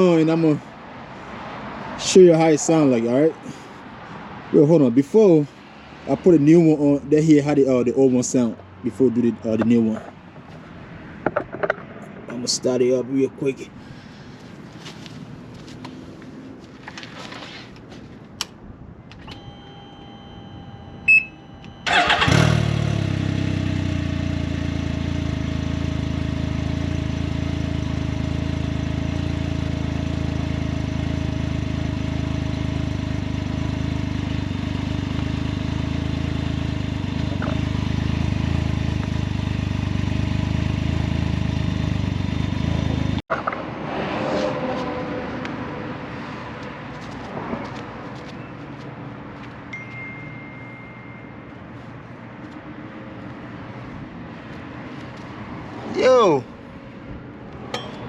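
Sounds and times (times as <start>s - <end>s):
motorcycle engine idling: 21.9s - 43.1s
thin steady tone: 49.7s - 51.5s.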